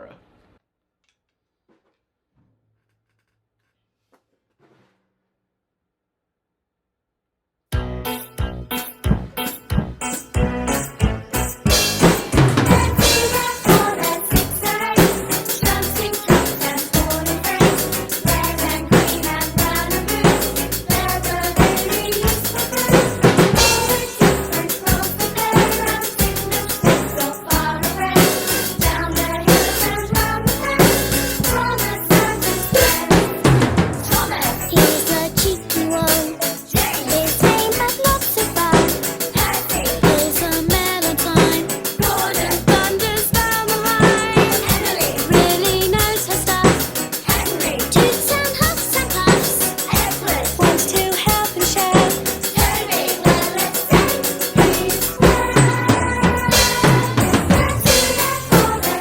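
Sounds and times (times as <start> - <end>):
instrumental pop song: 7.7 - 59.0
drum kit playing: 7.8 - 59.0.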